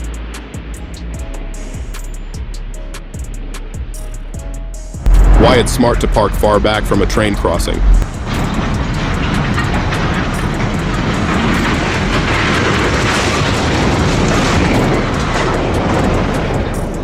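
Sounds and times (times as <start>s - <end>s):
train rushing past: 5.0s - 17.0s.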